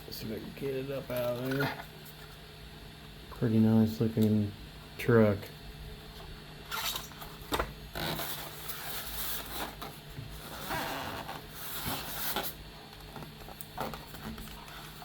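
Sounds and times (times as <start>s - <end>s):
packaging rustling and scraping: 6.7s - 15.0s.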